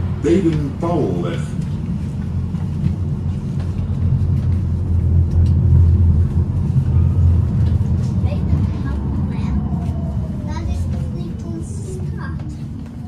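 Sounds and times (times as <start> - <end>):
tram rumbling on rails: 0.0 - 13.0.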